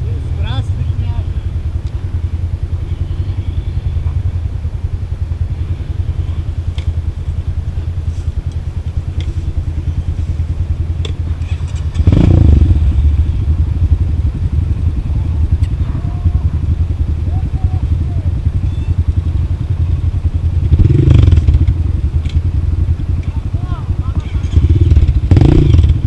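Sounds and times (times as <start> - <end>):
motorcycle engine rumbling: 0.0 - 26.0
clicks and clatters over rough ground: 6.2 - 7.4, 8.0 - 10.4, 11.0 - 12.2, 22.1 - 25.2.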